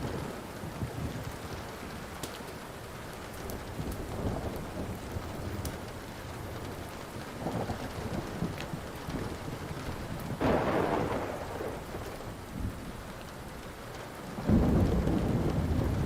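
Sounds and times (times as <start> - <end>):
steady rain: 0.0 - 16.0
wood fire crackling: 0.0 - 16.0
rolling thunder: 3.5 - 13.2, 14.3 - 16.0.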